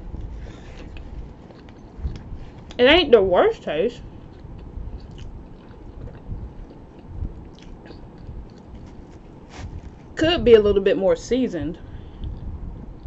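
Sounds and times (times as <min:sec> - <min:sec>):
person chewing with mouth closed: 0:00.2 - 0:02.8, 0:04.2 - 0:09.9
small mouth clicks: 0:04.3 - 0:09.0.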